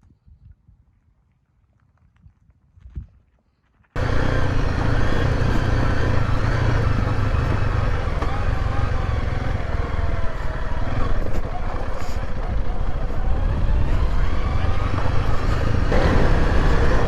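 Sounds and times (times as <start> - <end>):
motorcycle engine rumble: 4.0 - 17.0
wind noise: 4.0 - 17.0.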